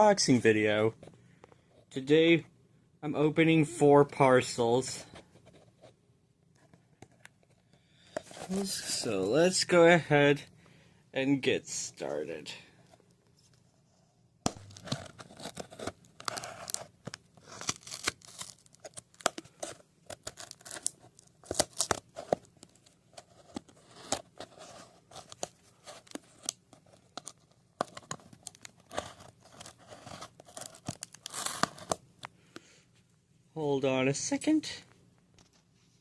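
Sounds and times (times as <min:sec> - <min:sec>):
packaging being torn open: 0:14.7 - 0:19.5, 0:20.1 - 0:22.3, 0:26.4 - 0:32.0.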